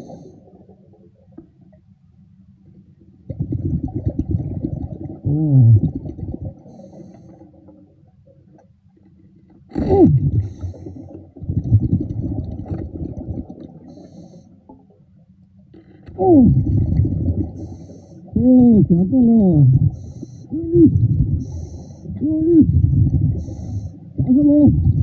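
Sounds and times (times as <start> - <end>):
underwater air bubbling: 3.2 - 8.7, 9.7 - 25.0.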